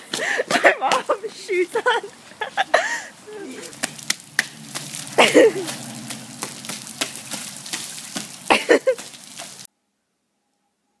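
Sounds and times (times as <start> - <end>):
footsteps splashing through puddles: 0.0 - 9.7
rain hissing on wet pavement: 0.0 - 9.7
raindrops ticking on phone: 3.6 - 9.7.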